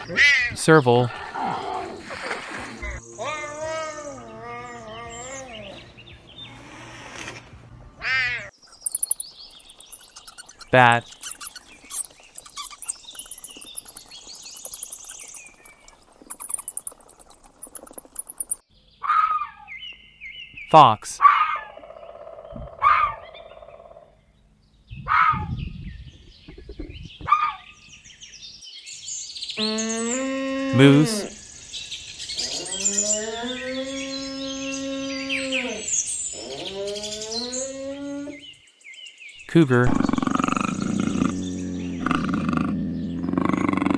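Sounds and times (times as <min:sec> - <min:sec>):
birds chirping: 0:00.6 - 0:02.0, 0:08.6 - 0:18.6, 0:30.8 - 0:37.7, 0:38.4 - 0:43.9
bats squeaking and chittering: 0:08.6 - 0:18.6.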